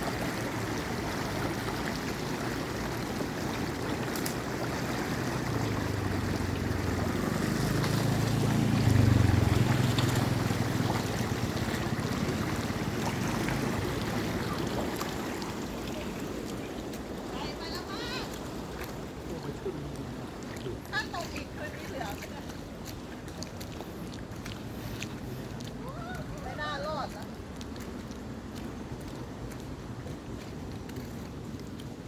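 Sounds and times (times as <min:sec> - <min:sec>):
flowing water rushing: 0:00.0 - 0:32.0
low motor hum: 0:04.6 - 0:16.0.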